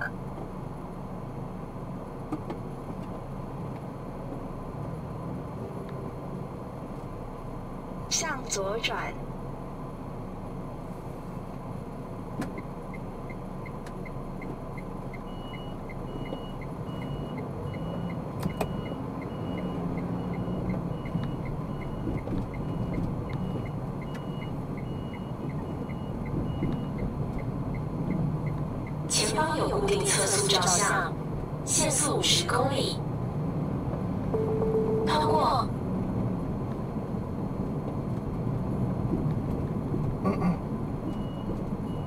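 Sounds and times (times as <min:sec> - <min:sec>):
car road and engine noise: 0:00.0 - 0:42.0
turn signal clicking: 0:12.4 - 0:17.2, 0:17.9 - 0:29.0
high short beep: 0:34.4 - 0:35.2.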